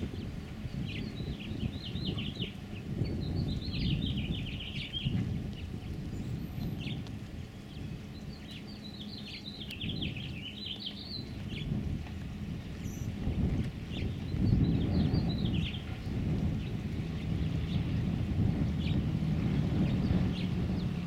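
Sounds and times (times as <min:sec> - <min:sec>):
steady low rumble: 0:00.0 - 0:21.0
songbird chirping: 0:00.7 - 0:11.8.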